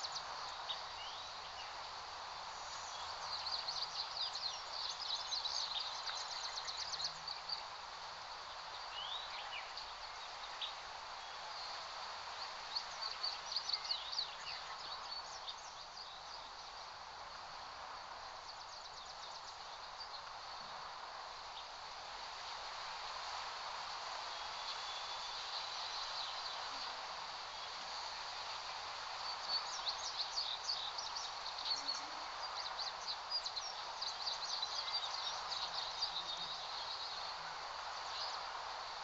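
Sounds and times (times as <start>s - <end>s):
small birds chirping: 2.6s - 7.8s, 24.3s - 39.0s.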